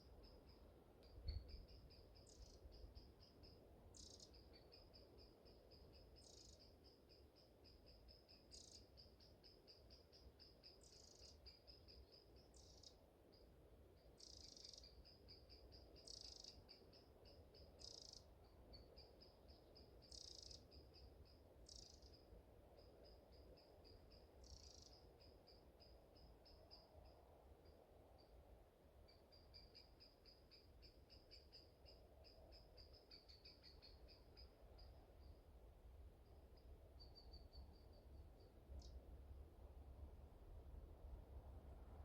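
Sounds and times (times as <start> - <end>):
low wind rumble: 38.0 - 42.0.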